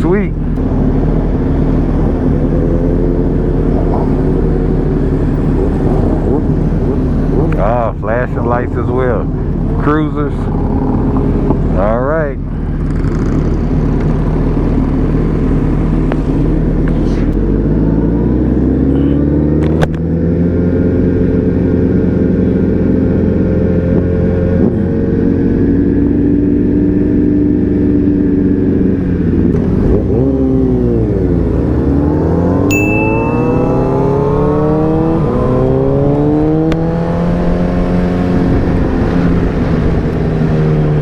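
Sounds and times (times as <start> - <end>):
motorcycle engine accelerating: 28.2 - 41.0.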